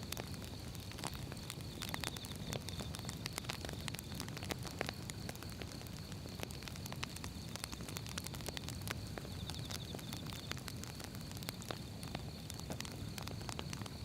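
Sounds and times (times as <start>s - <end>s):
firewood crackling: 0.0s - 14.0s.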